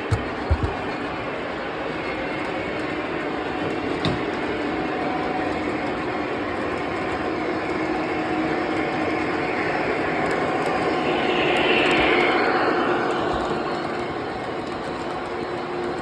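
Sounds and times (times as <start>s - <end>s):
diesel engine drone: 8.4s - 16.0s.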